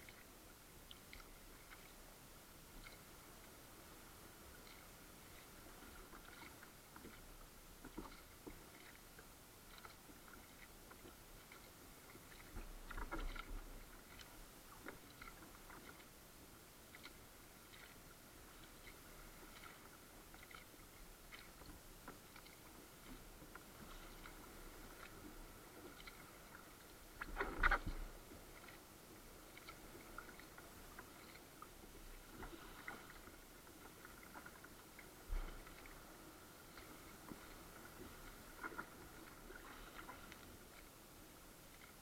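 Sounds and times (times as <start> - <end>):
water dripping against kayak hull: 16.9 - 28.8
water splashing: 16.9 - 28.8, 29.4 - 40.9.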